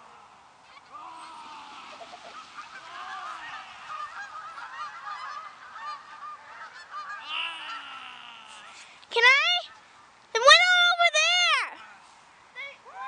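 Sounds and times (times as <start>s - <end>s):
geese honking: 0.6s - 8.9s.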